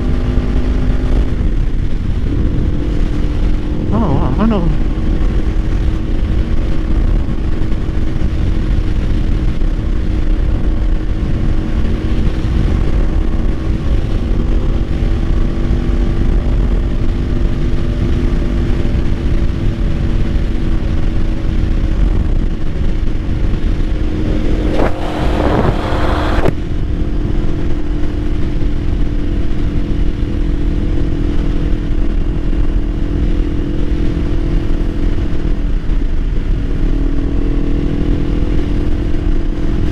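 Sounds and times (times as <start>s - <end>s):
motorcycle engine cruising: 0.0s - 39.9s
wind rumble on microphone: 0.0s - 39.9s
brief rushing noise: 23.6s - 26.5s.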